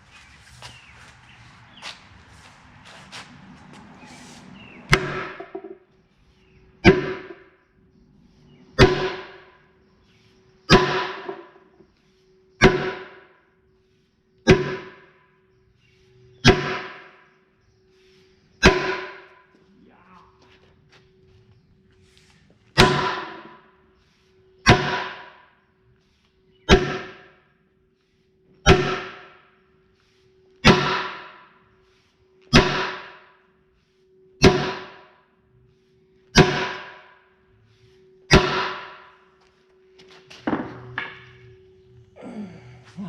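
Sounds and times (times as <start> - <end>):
hammer striking steel: 4.9 - 5.8, 6.8 - 7.5, 8.8 - 9.6, 10.7 - 11.6, 12.6 - 13.3, 14.5 - 15.1, 16.4 - 17.2, 18.6 - 19.4, 22.8 - 23.6, 24.7 - 25.4, 26.7 - 27.3, 28.7 - 29.4, 30.6 - 31.6, 32.5 - 33.4, 34.4 - 35.2, 36.4 - 37.3, 38.3 - 39.2.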